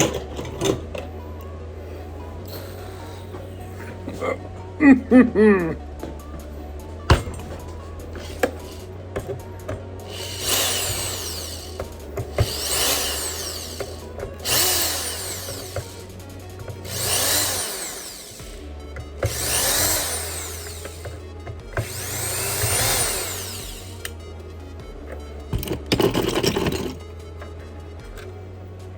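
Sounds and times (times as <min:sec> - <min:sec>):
electric screwdriver whirring: 0:08.2 - 0:24.2.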